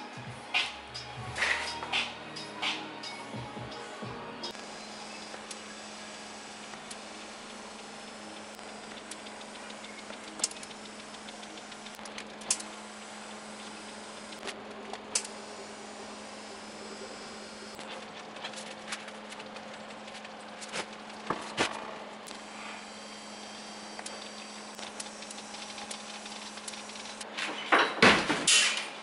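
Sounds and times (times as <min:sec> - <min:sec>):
arc welding hum and hiss: 0:00.0 - 0:27.4
welding clicks and crackles: 0:04.5 - 0:27.3.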